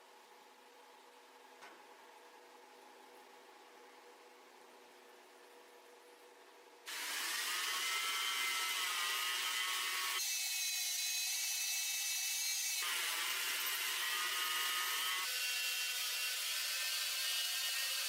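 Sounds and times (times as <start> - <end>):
power tool whining: 6.9 - 10.3.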